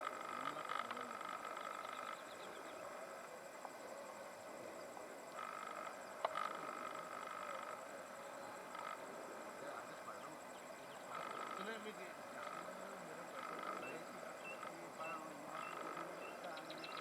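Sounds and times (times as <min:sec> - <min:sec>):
insects trilling: 0:00.0 - 0:17.0
low pulsing insect call: 0:00.0 - 0:17.0.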